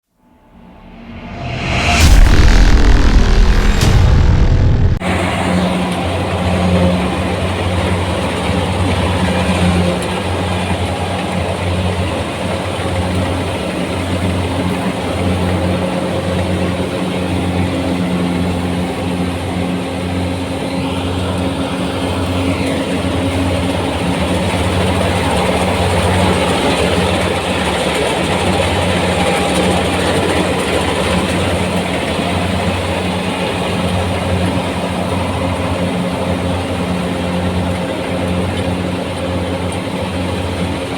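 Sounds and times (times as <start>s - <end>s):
machinery rushing noise: 0.2s - 14.0s
combine harvester engine drone: 0.3s - 40.9s.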